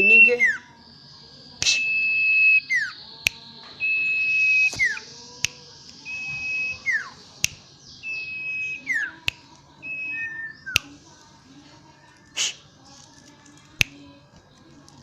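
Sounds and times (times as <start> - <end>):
bird singing whistles: 0.0 - 11.0
sharp clicks: 1.6 - 11.1, 12.1 - 15.0.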